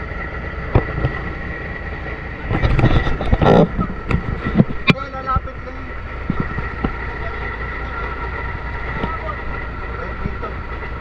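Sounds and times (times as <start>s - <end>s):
truck engine idling: 0.0s - 11.0s
knocks and scraping: 2.4s - 5.5s, 6.2s - 7.1s.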